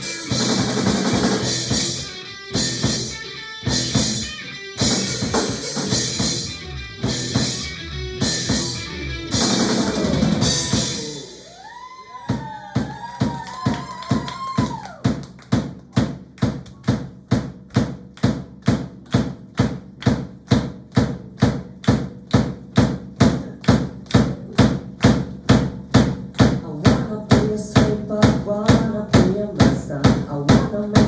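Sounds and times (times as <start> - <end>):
bass line: 0.0 - 11.8
kick drum beat: 12.3 - 31.0.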